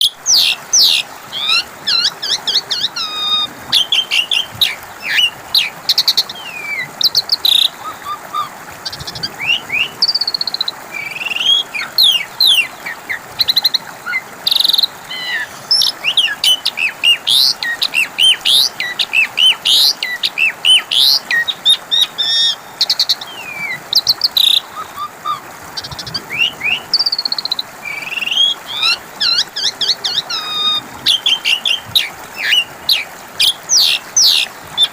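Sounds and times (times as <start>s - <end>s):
starling singing: 0.0s - 5.7s, 11.0s - 13.2s, 14.7s - 22.6s, 27.9s - 34.9s.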